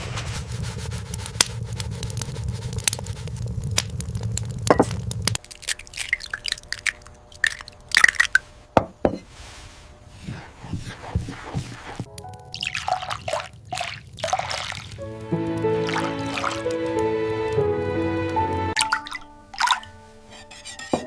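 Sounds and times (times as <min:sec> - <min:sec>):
steady low rumble: 0:00.0 - 0:05.4
sharp crunching and cracking: 0:00.5 - 0:08.4.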